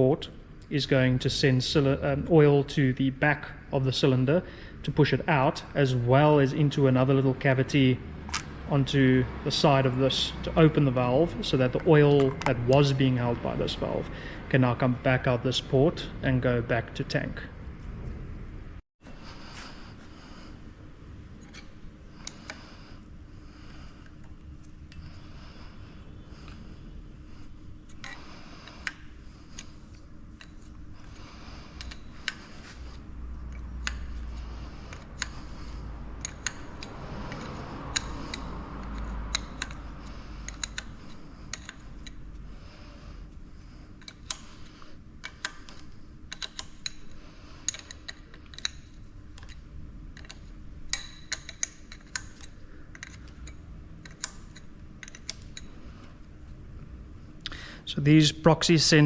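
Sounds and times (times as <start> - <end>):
metal tools clicking and tapping: 31.8 - 32.5, 33.4 - 42.3, 45.2 - 55.8.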